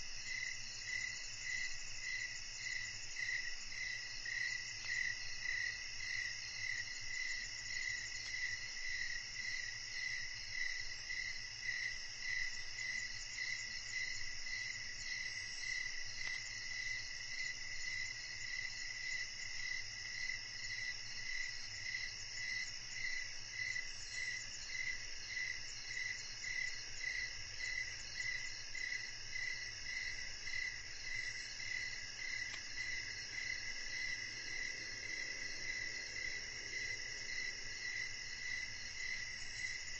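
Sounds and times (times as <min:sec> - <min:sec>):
crickets and insects trilling: 0:00.0 - 0:39.9
pulsing insect call: 0:25.7 - 0:39.9.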